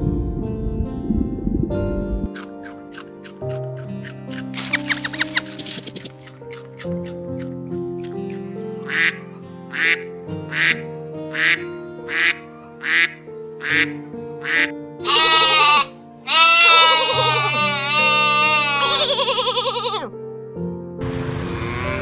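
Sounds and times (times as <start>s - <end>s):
background music with held notes: 0.0s - 22.0s
duck quacking: 8.8s - 20.1s
sheep bleating: 14.6s - 20.1s, 21.6s - 22.0s.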